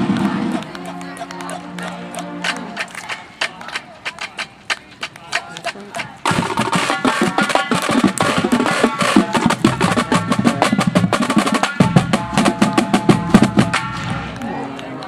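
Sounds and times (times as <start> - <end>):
rapid drum strokes: 0.0 - 14.4.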